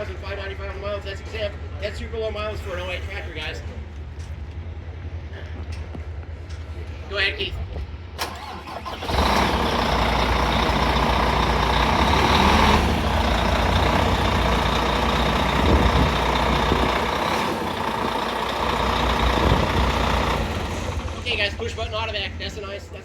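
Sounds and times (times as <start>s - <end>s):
truck diesel engine running: 8.2s - 23.0s.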